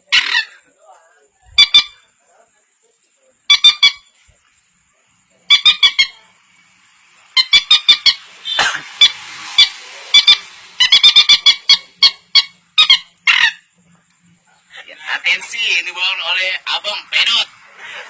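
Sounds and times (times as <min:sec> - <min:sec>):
bird caller squeaky notes: 0:01.6 - 0:02.0, 0:03.5 - 0:04.1, 0:05.5 - 0:06.2, 0:09.6 - 0:13.7.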